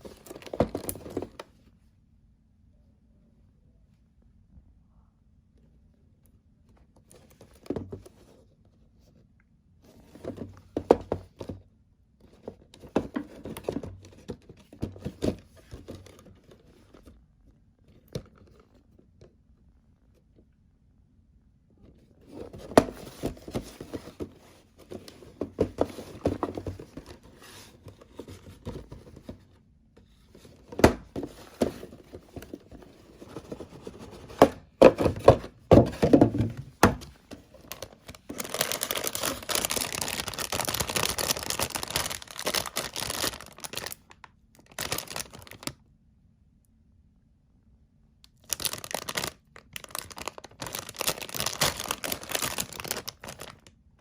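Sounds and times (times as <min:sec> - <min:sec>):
knocks and clicks of box: 0:22.3 - 0:29.5, 0:30.6 - 0:39.7
plastic wrap crinkling and tearing: 0:37.7 - 0:45.7, 0:48.4 - 0:53.7.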